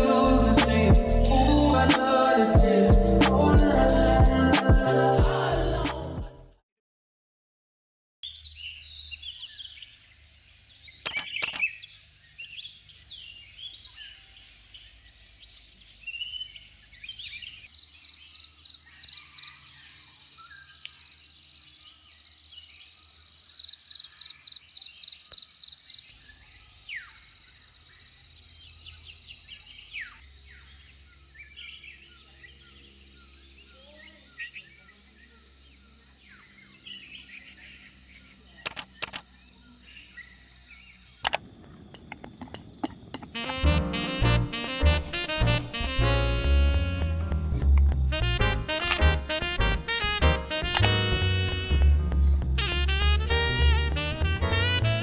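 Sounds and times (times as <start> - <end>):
sharp clicks: 11.0 - 11.7, 38.6 - 39.3, 41.2 - 43.6, 50.6 - 51.0.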